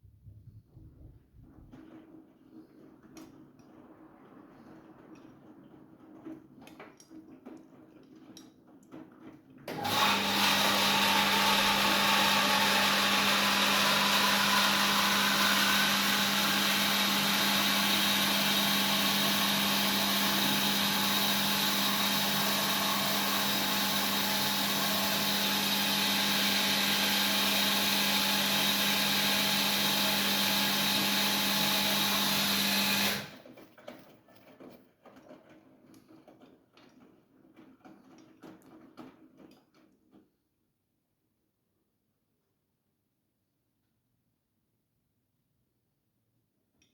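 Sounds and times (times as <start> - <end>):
washing machine rushing water: 0.8 - 34.5.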